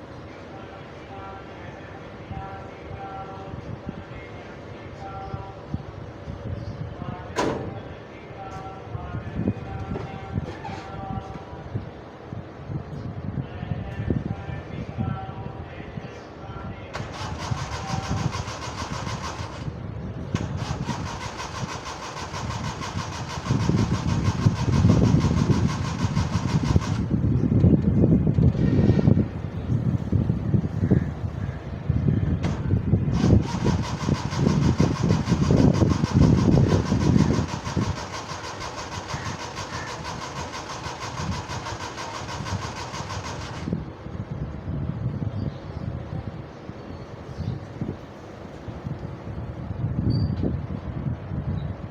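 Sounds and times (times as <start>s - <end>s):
car engine running rough: 17.0s - 28.6s, 32.4s - 43.9s
starter motor churning: 17.0s - 28.6s, 32.4s - 43.9s.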